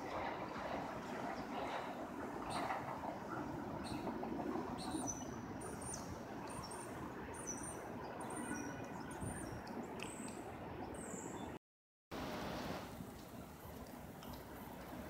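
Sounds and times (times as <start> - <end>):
small birds chirping: 4.8 - 11.6.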